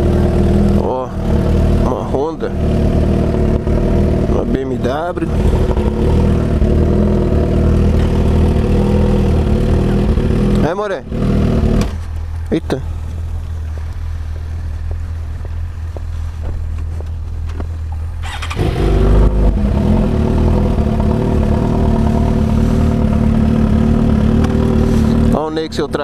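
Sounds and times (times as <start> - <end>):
louder engine running close by: 0.0 - 12.1, 18.2 - 26.0
motorcycle engine idling: 0.0 - 26.0.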